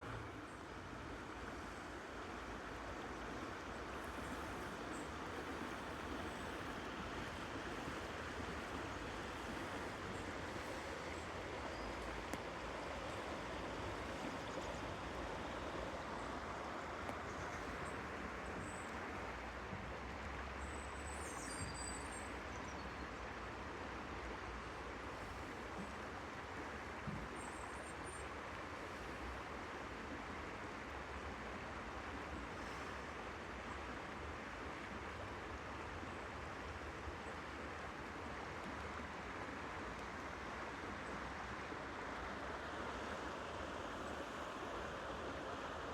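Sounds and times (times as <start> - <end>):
stream water flowing: 0.0 - 45.9.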